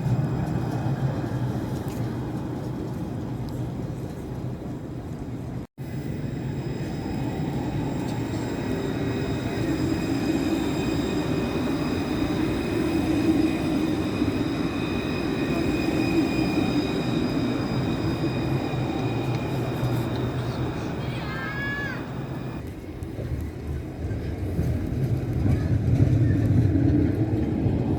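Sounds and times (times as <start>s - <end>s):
tram wheels rumbling on rail: 0.0s - 27.9s
high whine: 5.8s - 22.6s.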